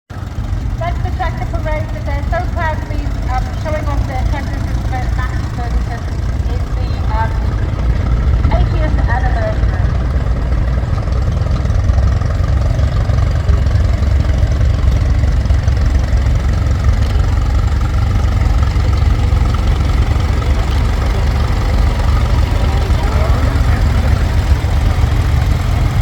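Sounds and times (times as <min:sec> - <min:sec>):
tractor engines rumbling: 0:00.1 - 0:26.0.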